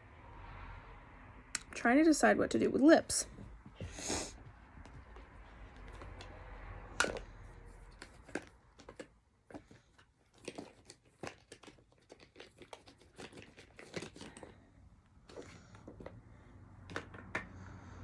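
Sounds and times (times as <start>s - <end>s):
small objects rustling: 4.8s - 16.2s.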